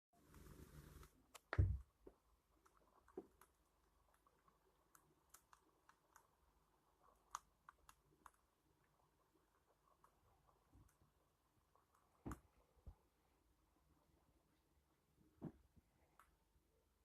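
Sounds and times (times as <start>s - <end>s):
faint clicks and ticks: 0.2s - 13.1s, 16.0s - 16.5s.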